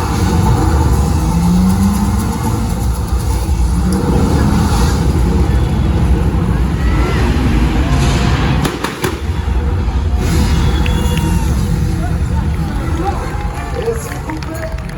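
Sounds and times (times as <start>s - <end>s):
car engines rumbling loudly: 0.0s - 14.9s
sharp bangs: 2.3s - 13.5s.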